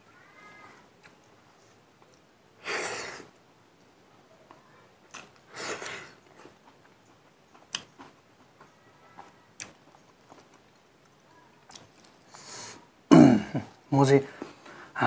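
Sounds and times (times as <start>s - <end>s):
chewing with wet clicks: 1.0s - 2.3s, 5.0s - 12.5s.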